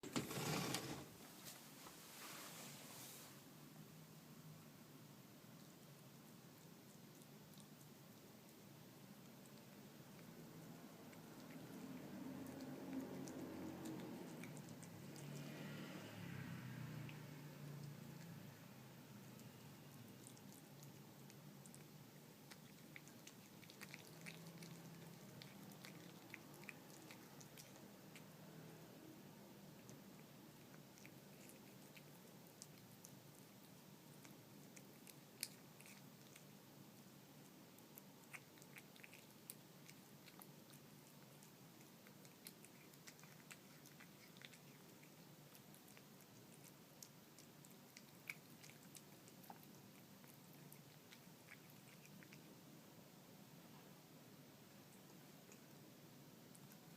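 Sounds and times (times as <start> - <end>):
cat chewing food: 4.3 - 56.9.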